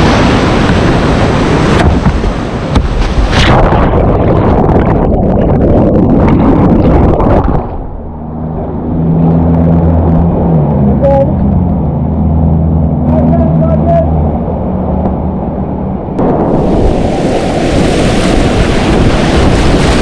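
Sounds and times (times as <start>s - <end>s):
rushing water or wind noise: 0.0s - 20.0s
vehicle engine humming: 6.6s - 17.2s.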